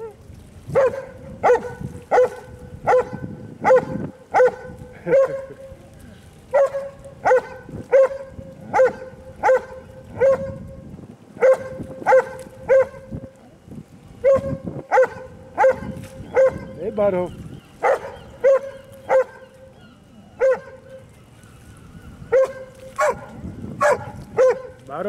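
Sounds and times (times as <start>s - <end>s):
dog barking: 0.8s - 5.5s, 6.5s - 10.6s, 11.4s - 13.1s, 14.2s - 16.8s, 17.8s - 19.5s, 20.4s - 20.8s, 22.3s - 24.8s.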